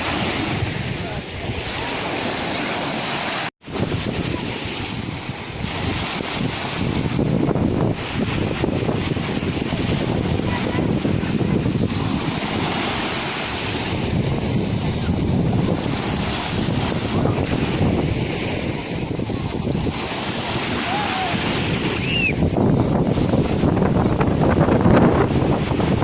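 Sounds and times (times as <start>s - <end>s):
sea surf breaking: 0.0s - 26.0s
wind buffeting microphone: 0.0s - 26.0s.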